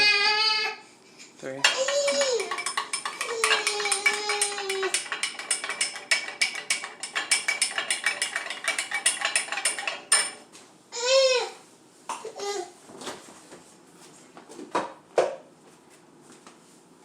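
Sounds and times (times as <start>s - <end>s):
utensil whisking in bowl: 1.6s - 10.4s.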